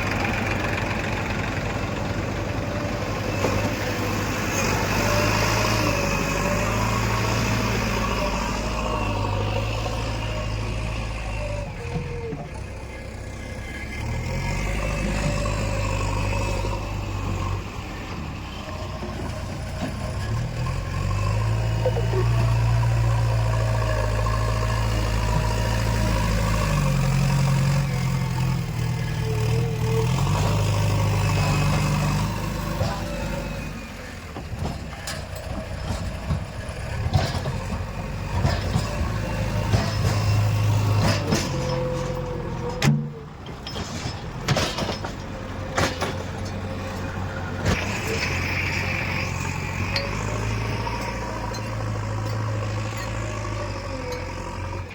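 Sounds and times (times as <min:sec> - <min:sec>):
heavy diesel engine revving: 0:00.0 - 0:54.9
sharp metallic knocks and clanks: 0:34.4 - 0:46.5.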